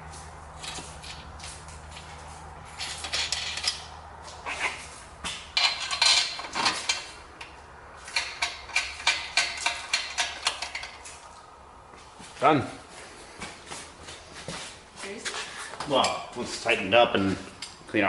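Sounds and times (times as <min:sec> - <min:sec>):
metal exhaust pipes clanking: 0:00.0 - 0:12.2, 0:15.8 - 0:17.9
metal scrape: 0:00.6 - 0:07.2.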